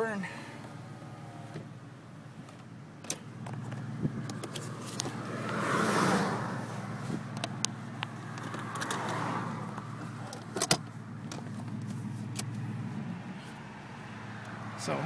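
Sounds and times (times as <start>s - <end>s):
car engine running: 0.0s - 15.0s
turn signal clicking: 2.4s - 5.6s, 7.1s - 12.7s.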